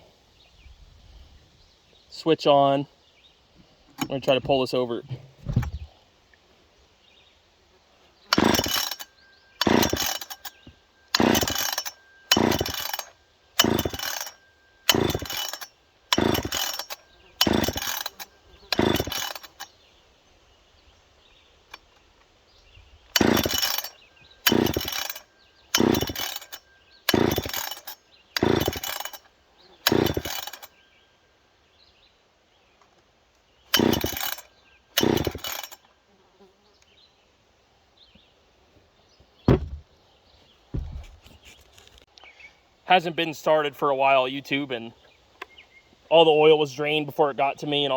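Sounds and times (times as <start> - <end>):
chainsaw recoil starter pulls: 3.9 - 5.9, 8.3 - 19.8, 23.1 - 30.8, 33.7 - 35.9.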